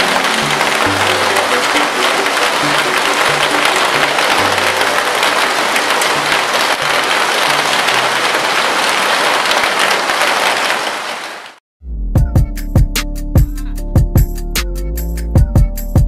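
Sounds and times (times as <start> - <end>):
heavy rain falling: 0.0 - 11.6.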